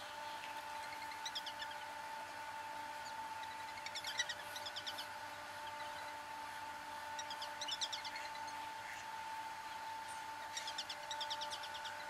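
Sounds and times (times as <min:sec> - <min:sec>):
faint steady hum: 0:00.0 - 0:12.0
small bird chirping: 0:00.2 - 0:02.0, 0:03.0 - 0:06.2, 0:07.1 - 0:09.0, 0:09.7 - 0:12.0.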